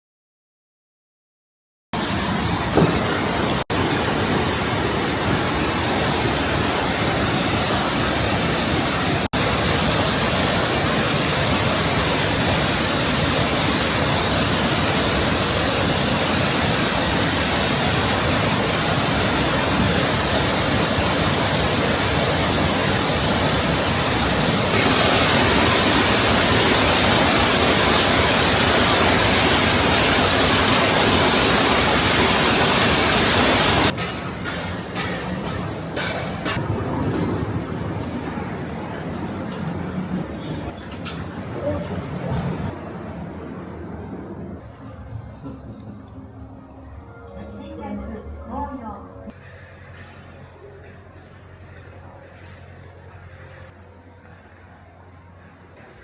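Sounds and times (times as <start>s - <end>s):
waterfall roaring: 2.0s - 43.6s.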